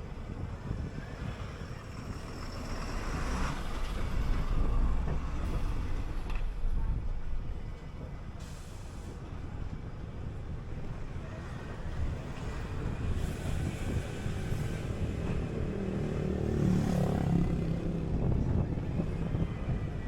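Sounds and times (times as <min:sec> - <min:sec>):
city bus engine and road noise: 0:00.0 - 0:20.0
brief air hiss: 0:08.4 - 0:09.2.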